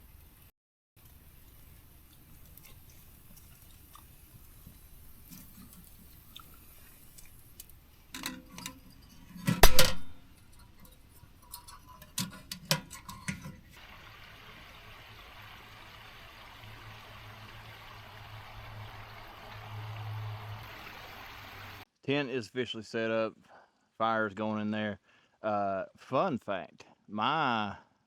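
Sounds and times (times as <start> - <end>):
steady hiss: 0.0 - 21.8
knocks and clicks: 9.6 - 10.2.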